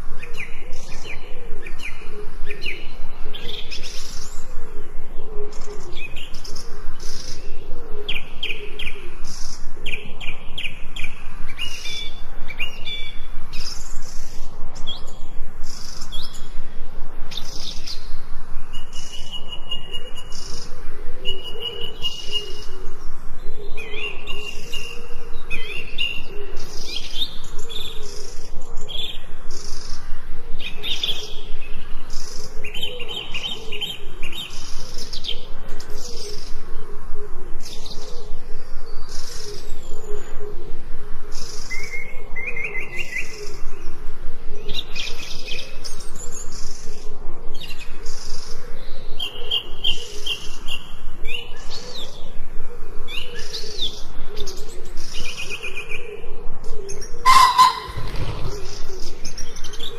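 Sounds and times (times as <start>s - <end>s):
songbirds chirping and trilling: 0.0s - 59.9s
whistled bird notes: 57.2s - 59.9s.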